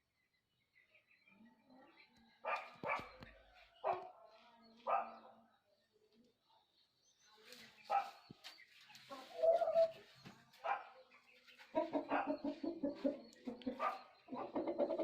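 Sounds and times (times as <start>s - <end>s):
rooster clucking: 11.7s - 15.0s.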